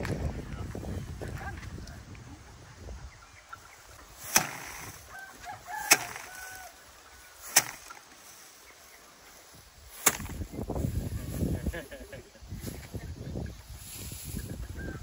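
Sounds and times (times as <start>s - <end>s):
rice sheaves striking wooden rack: 4.2s - 5.1s, 5.7s - 6.7s, 7.4s - 8.3s, 9.9s - 10.5s.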